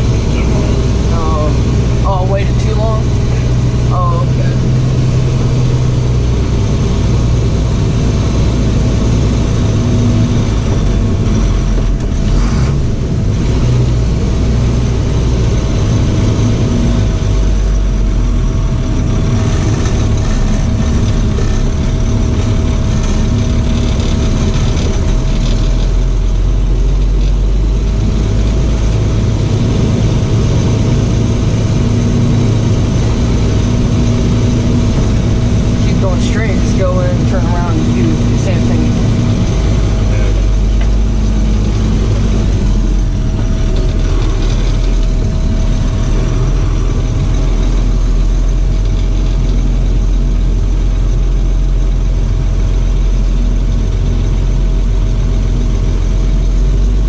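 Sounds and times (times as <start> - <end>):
thin steady whine: 0.0 - 57.0
truck engine rumble: 0.0 - 57.0.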